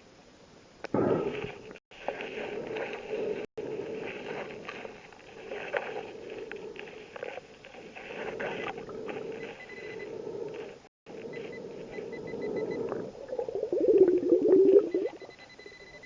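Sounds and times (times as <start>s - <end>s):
underwater clicks and crackles: 0.8s - 16.0s.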